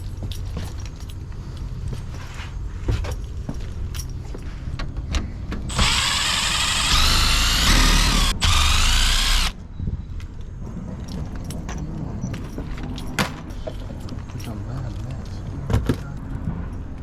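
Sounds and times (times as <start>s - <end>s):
power drill whining: 5.7s - 9.6s.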